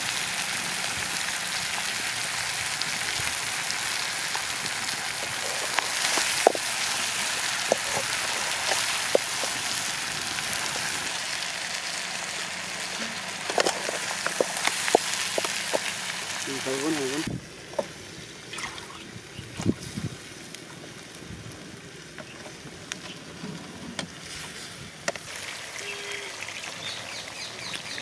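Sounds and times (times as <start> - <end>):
chicken sizzling in a pan: 0.0 - 18.5, 24.2 - 28.0.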